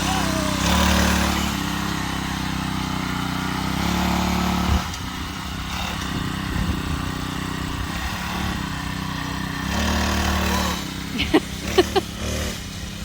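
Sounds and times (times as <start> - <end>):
mini bike engine running: 0.0 - 13.0.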